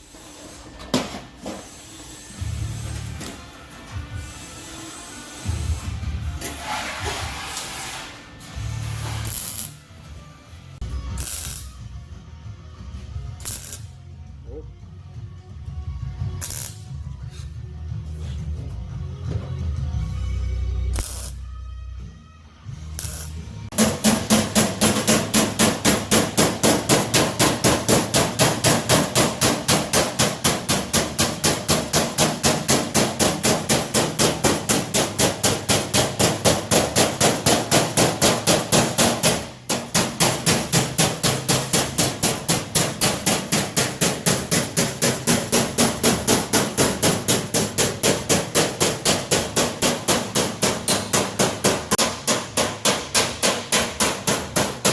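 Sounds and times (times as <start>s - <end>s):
hammering on sheet steel: 23.7s - 54.9s.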